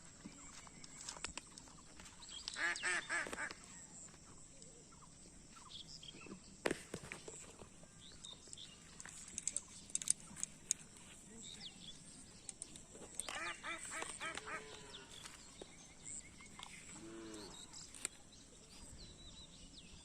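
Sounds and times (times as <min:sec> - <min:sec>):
animal quacking calls: 0:13.3 - 0:15.2.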